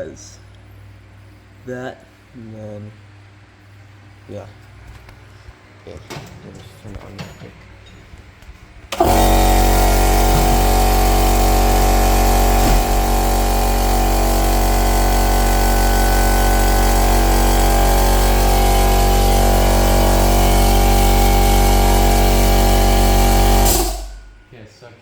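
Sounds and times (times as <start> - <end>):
compressed-air engine buzzing: 8.9 - 24.4.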